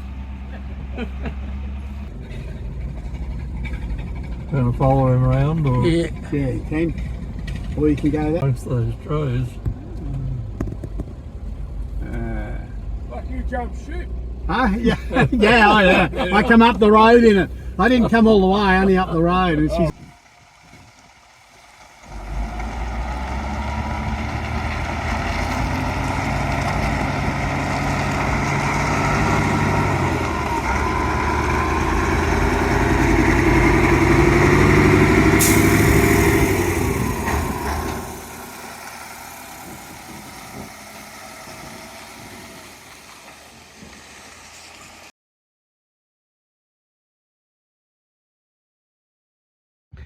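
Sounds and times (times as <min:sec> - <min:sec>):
truck diesel engine pulling away: 0:00.0 - 0:08.4, 0:10.2 - 0:45.1
short sharp air hiss: 0:35.4 - 0:36.2.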